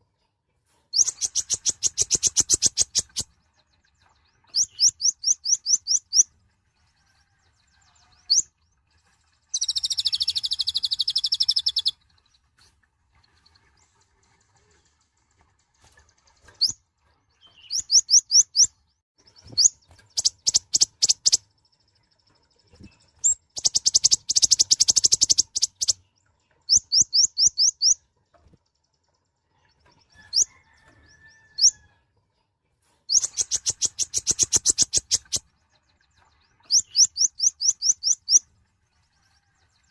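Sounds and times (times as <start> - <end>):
small bird singing high trills: 1.0 - 3.3, 9.5 - 12.0, 19.4 - 21.4, 33.1 - 35.4, 36.0 - 38.5.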